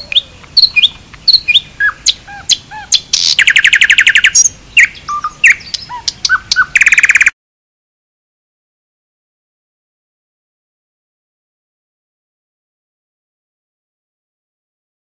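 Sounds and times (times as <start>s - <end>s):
birds chirping and singing: 0.0s - 7.3s
bird trill: 0.0s - 7.4s.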